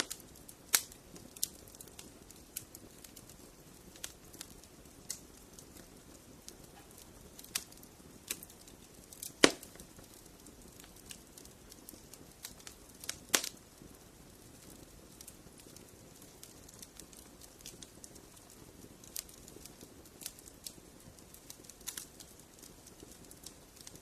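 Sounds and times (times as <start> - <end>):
fireplace fire crackling: 0.0 - 24.0.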